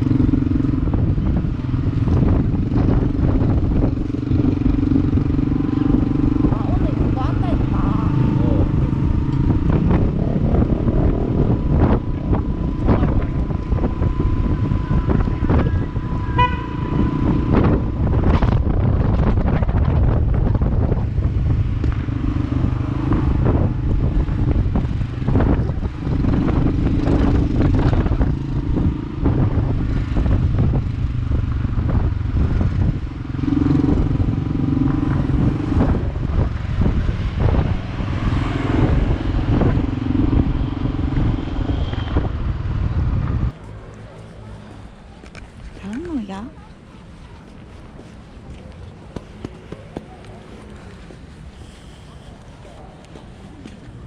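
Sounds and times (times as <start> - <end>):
motorcycle engine running: 0.0 - 43.8
wind buffeting microphone: 0.0 - 54.0.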